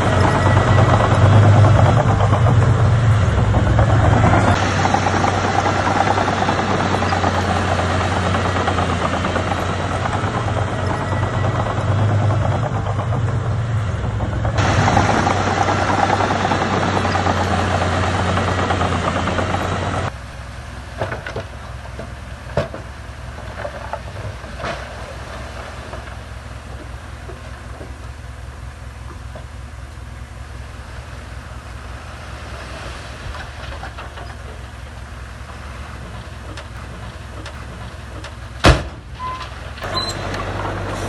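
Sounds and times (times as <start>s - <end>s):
heavy machinery diesel engine: 0.0s - 41.0s
clanks and knocks: 33.3s - 41.0s.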